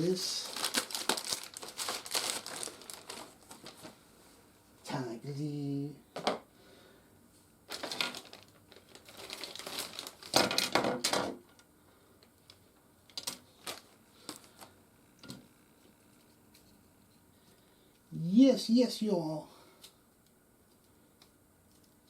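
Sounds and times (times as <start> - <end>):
plastic packaging crinkling: 0.0 - 4.0, 7.7 - 11.6, 12.5 - 14.7.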